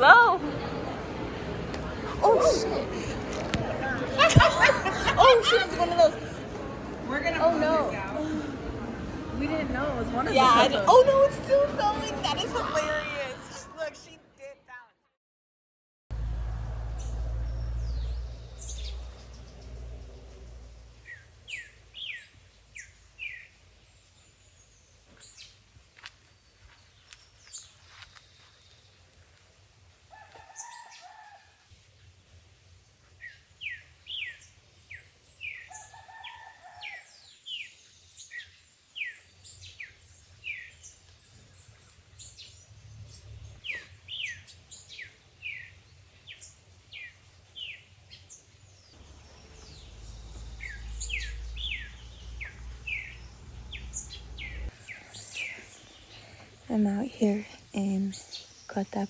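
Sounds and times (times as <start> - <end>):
birds chirping: 1.3 - 14.1, 16.2 - 25.6, 33.2 - 59.0
low rumble: 16.1 - 21.5.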